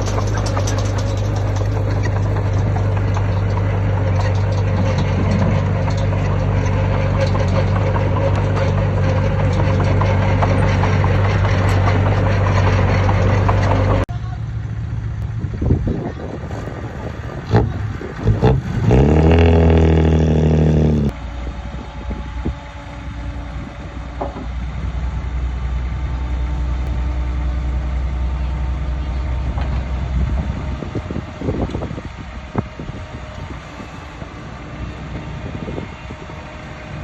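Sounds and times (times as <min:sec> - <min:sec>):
metal clanks: 0:00.0 - 0:14.0
heavy diesel engine revving: 0:17.3 - 0:21.2.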